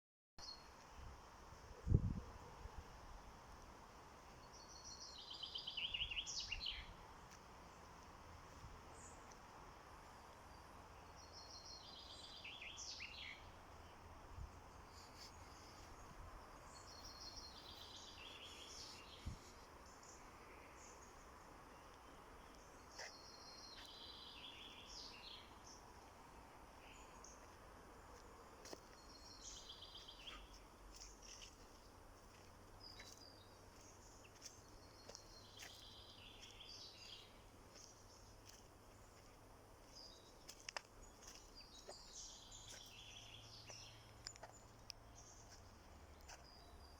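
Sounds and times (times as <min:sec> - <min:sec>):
faint birdsong: 0:00.4 - 0:46.9.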